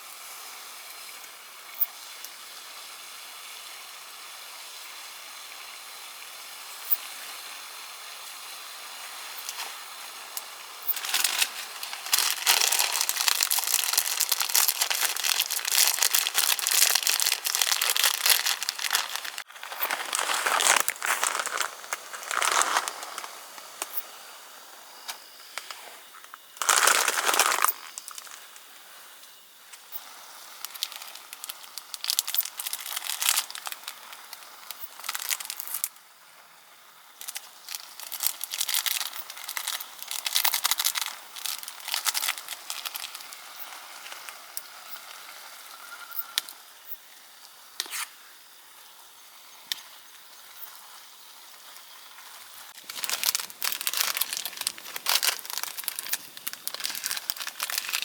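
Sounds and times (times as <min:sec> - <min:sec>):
material rustling and crinkling: 0:10.9 - 0:23.8, 0:26.6 - 0:28.6, 0:52.8 - 0:58.0.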